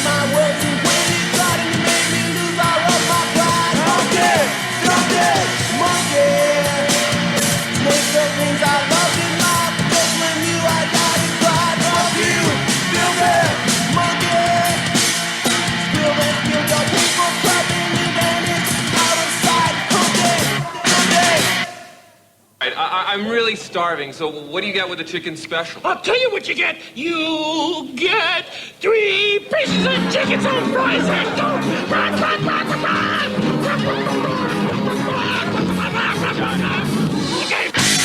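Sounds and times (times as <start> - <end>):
person yelling singing: 0.0 - 15.0, 15.8 - 22.0, 27.1 - 37.9
punk rock band playing: 0.0 - 21.8, 29.6 - 38.0
drums: 0.0 - 23.0, 29.4 - 38.0.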